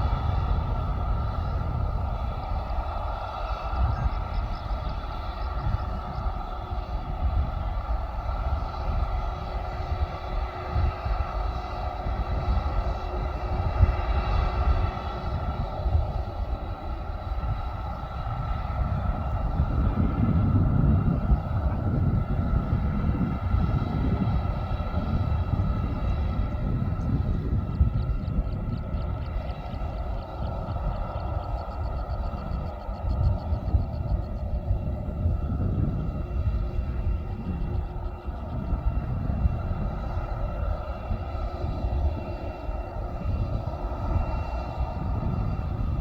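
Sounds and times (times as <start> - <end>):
airliner engines whining: 0.0 - 46.0.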